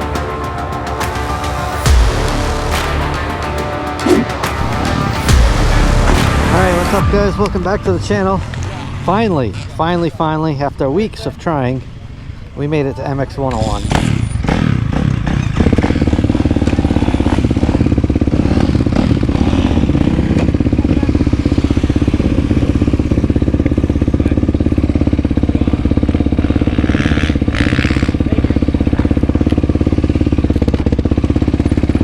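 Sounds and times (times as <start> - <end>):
quad engine running steadily: 13.4 - 32.0.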